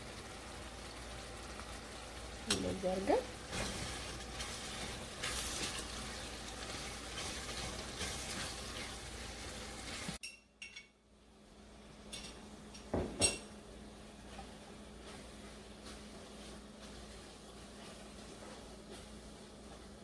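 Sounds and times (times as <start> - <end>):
onion and tomato sizzling in a pan: 0.0 - 10.2, 11.2 - 20.0
wooden spoon stirring: 3.3 - 10.2, 14.2 - 20.0.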